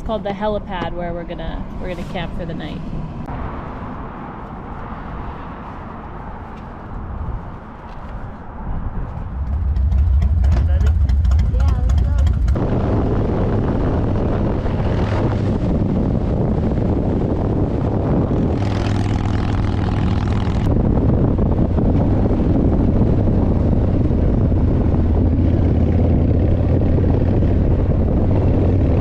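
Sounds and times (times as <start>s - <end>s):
motorcycle engine running: 9.1s - 29.0s.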